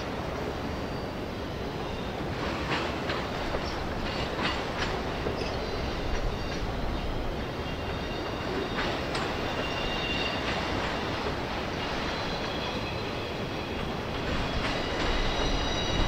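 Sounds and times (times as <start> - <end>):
train wheels rumbling on rail: 0.0 - 16.0
high wheel squeal: 7.5 - 11.2, 11.9 - 16.0.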